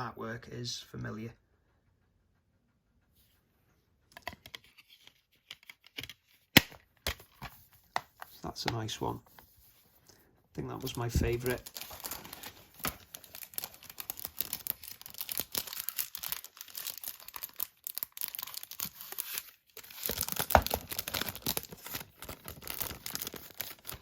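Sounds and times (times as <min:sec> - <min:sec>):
plastic cases rustling and clicking: 0:04.1 - 0:09.5, 0:10.8 - 0:17.4, 0:18.2 - 0:24.0.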